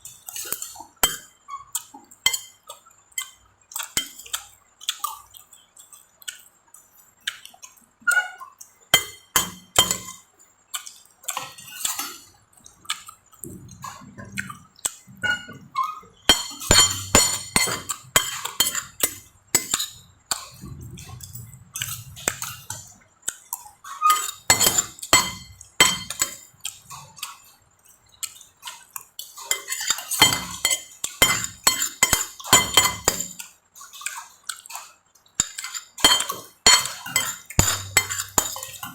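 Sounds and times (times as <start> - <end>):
utensils clinking on a plate: 0.0 - 5.1, 8.1 - 10.3, 11.3 - 12.3, 13.4 - 27.5, 28.2 - 38.9.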